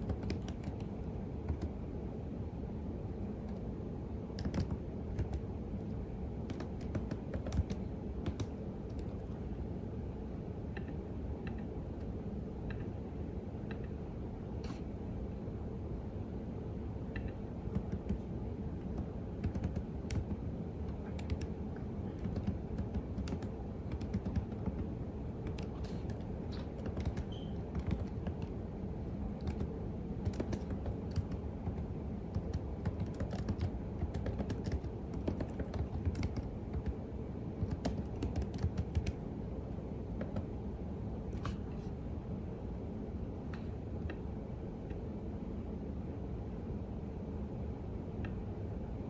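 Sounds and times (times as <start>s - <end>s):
low background hum: 0.0s - 49.0s
keyboard key clicks: 4.4s - 5.4s.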